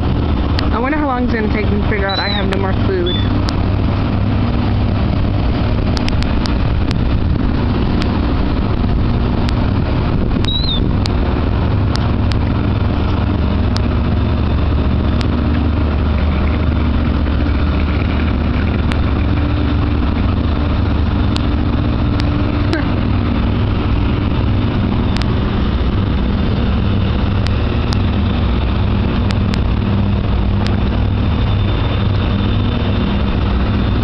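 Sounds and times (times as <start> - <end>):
engine idling: 0.0 - 34.0
sharp clicks: 10.4 - 11.2.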